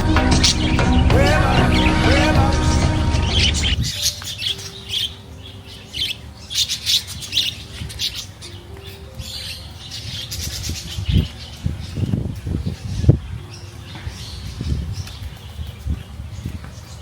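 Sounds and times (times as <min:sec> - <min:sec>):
low thumps: 0:00.0 - 0:03.8
birds squawking: 0:00.0 - 0:12.0.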